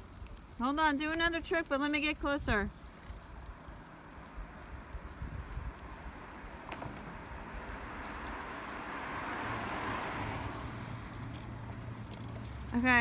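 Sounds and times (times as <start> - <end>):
vehicle passing by: 3.8 - 13.0.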